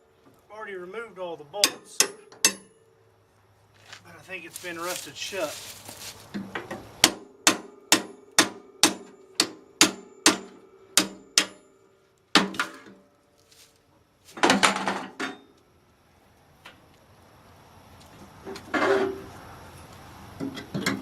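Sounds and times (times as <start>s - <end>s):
hammer striking metal: 1.6s - 2.9s, 7.0s - 11.8s.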